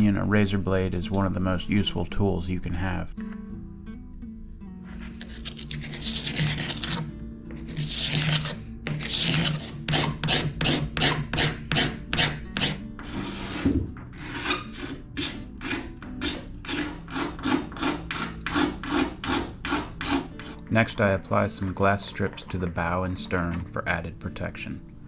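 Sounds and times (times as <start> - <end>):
razor blade scraping epoxy: 4.8 - 20.7.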